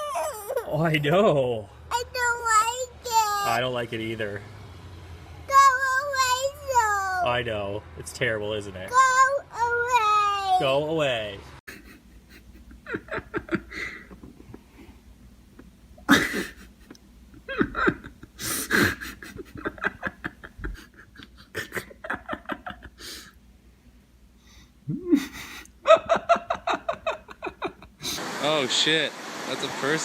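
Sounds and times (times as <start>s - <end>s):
person laughing: 11.7s - 14.8s, 15.5s - 23.3s, 24.9s - 28.2s
person breathing: 13.7s - 15.1s, 23.0s - 23.4s, 24.4s - 25.7s.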